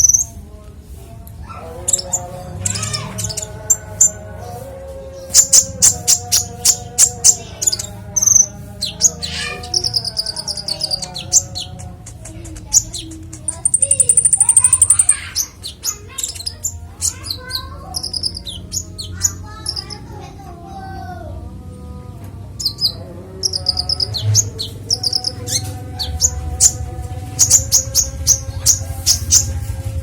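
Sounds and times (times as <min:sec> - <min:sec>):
songbird chirping and trilling: 0:00.0 - 0:30.0
steady low hum: 0:21.2 - 0:30.0.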